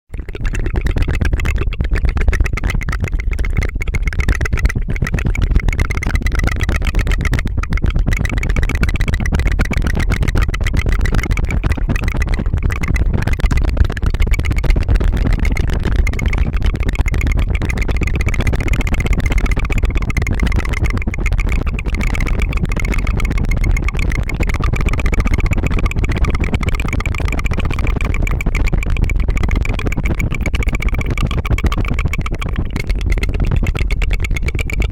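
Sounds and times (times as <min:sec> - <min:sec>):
tongue fluttering mouth clicks: 0:00.1 - 0:34.9.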